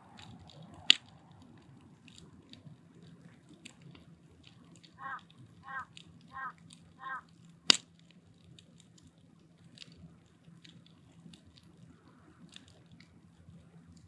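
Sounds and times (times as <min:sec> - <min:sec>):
wood fire crackling: 0:00.0 - 0:14.0
bird calling: 0:04.8 - 0:07.4.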